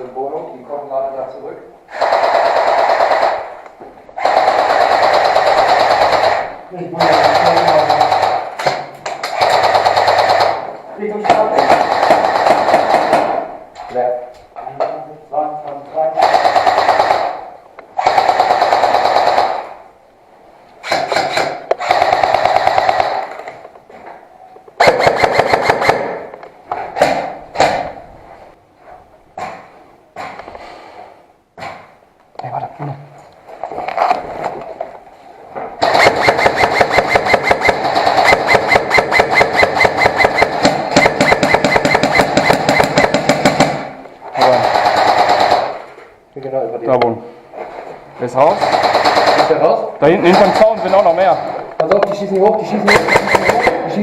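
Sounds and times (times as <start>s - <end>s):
airsoft rifle full-auto bursts: 1.9s - 3.6s, 4.2s - 8.5s, 9.3s - 10.7s, 11.6s - 13.2s, 16.2s - 19.8s, 20.8s - 23.4s, 24.8s - 26.2s, 35.8s - 45.9s, 48.6s - 49.7s, 52.8s - 53.9s.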